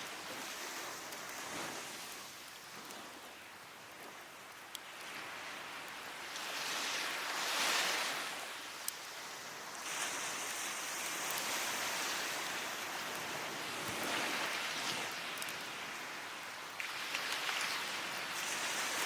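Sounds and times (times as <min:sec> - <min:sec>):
wood fire crackle: 0:00.0 - 0:06.5, 0:08.7 - 0:19.0
sea waves breaking on beach: 0:00.0 - 0:19.0.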